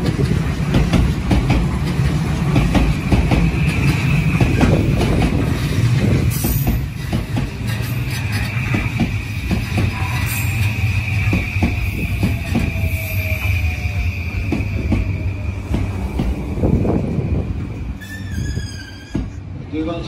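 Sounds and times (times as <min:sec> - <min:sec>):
wheels clattering over rail joints: 0:00.0 - 0:10.1
train low rumble: 0:00.0 - 0:20.0
high-pitched squeal: 0:07.7 - 0:19.4.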